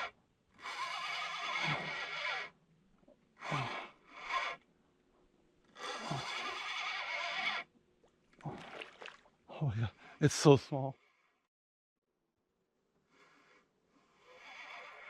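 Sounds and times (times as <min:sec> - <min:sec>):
fishing reel whirring: 0:00.0 - 0:02.6, 0:03.4 - 0:04.6, 0:05.8 - 0:07.7.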